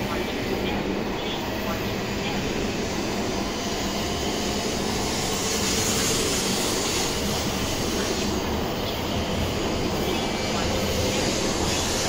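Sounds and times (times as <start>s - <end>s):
train rumbling: 0.0s - 12.0s
high hiss: 0.1s - 12.0s.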